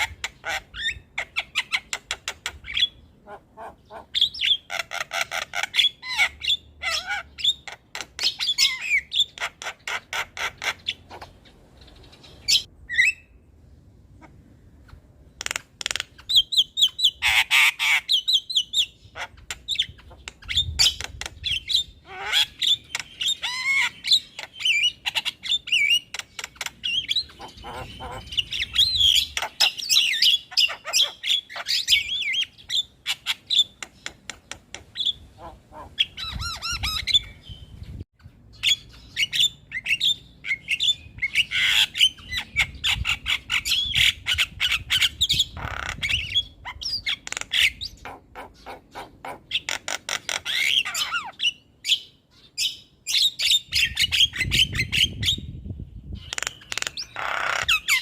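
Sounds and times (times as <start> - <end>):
myna squawking and chattering: 0.0 - 11.5, 19.0 - 32.4, 33.0 - 37.3, 41.3 - 51.5, 56.2 - 58.0.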